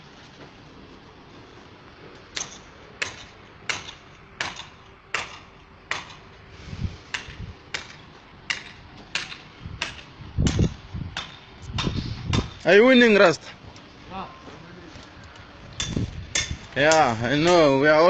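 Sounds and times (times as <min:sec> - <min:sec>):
hammer strikes: 0:02.3 - 0:06.2, 0:07.1 - 0:12.6, 0:15.8 - 0:17.8
low thuds: 0:09.6 - 0:12.6.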